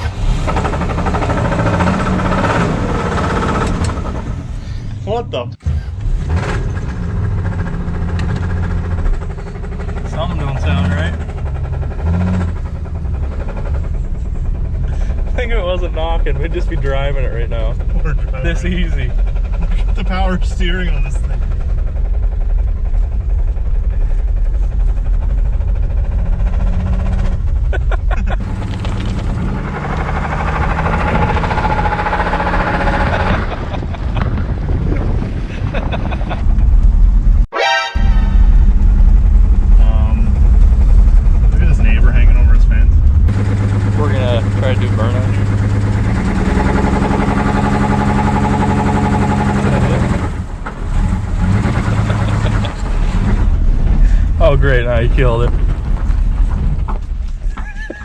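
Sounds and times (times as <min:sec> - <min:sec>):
car engine running: 0:00.0 - 0:37.4, 0:38.0 - 0:58.0
wind and road noise: 0:00.0 - 0:58.0
engine knocking: 0:06.9 - 0:33.4, 0:43.2 - 0:50.8.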